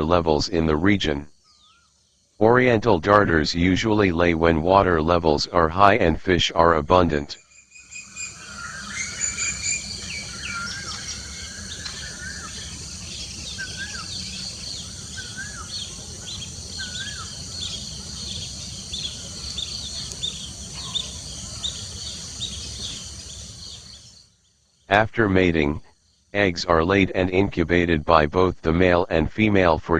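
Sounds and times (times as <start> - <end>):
insect drone: 0.6 - 2.6, 7.4 - 26.4
high bird chirps: 7.7 - 24.2
bird whistling wavy notes: 7.9 - 24.0.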